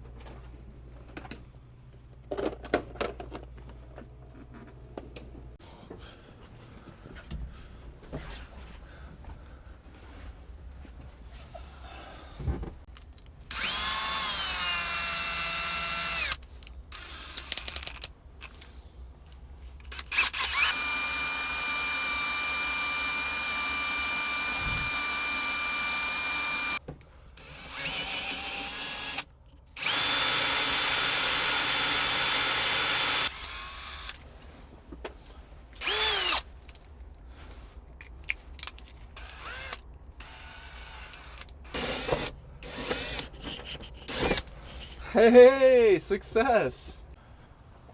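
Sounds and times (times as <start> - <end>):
electric drill whining: 13.5 - 17.7, 19.9 - 26.8, 27.4 - 34.2, 35.8 - 36.5, 39.2 - 43.3, 44.0 - 44.4.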